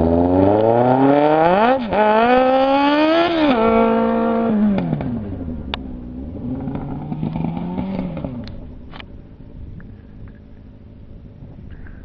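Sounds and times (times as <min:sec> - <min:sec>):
motorcycle engine revving: 0:00.0 - 0:09.1.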